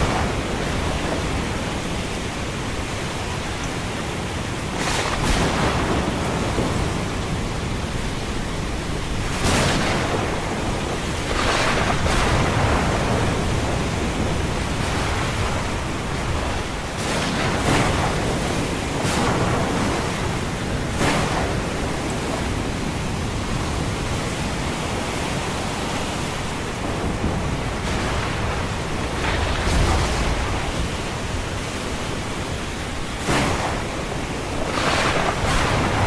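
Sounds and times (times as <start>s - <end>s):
waves breaking: 0.0s - 36.0s
sharp wave crashes: 33.2s - 36.0s.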